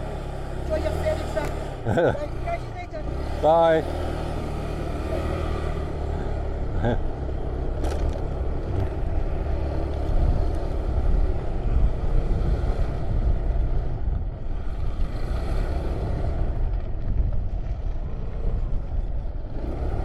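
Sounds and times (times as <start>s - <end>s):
motorcycle engine rumble: 0.0s - 20.0s
wind on microphone: 9.9s - 19.6s.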